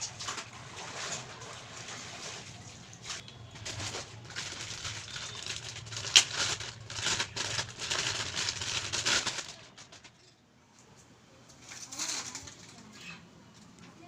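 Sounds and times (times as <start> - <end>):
rustling and clicking handling noises: 3.1 - 14.0.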